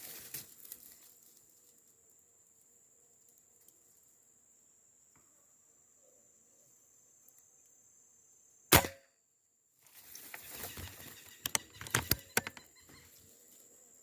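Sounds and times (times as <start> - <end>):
rustling: 0.0 - 1.9, 9.8 - 11.4
faint high insect drone: 0.0 - 14.0
air rifle shot: 8.7 - 9.0
sharp clicks: 11.3 - 12.7.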